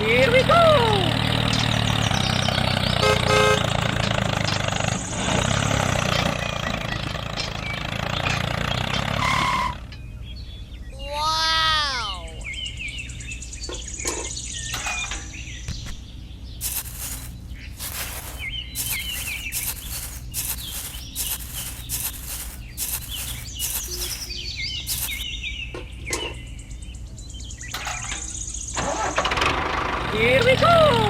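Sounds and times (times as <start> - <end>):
small birds chirping: 12.2 - 28.8
quick run of short noises: 16.6 - 25.2.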